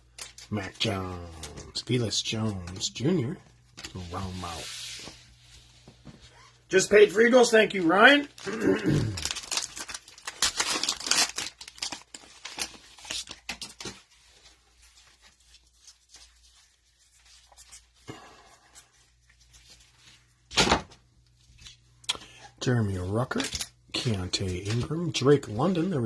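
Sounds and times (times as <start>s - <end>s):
cellophane wrapper tearing and crinkling: 8.2s - 16.4s.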